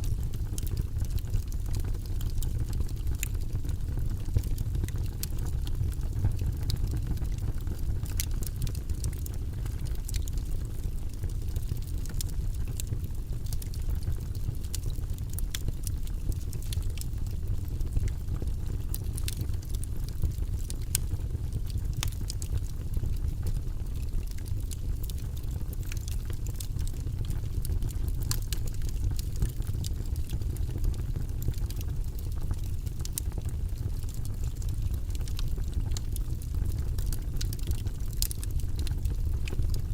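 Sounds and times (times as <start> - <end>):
burning logs crackling and popping: 0.0 - 39.9
fire flames rumbling: 0.0 - 39.9.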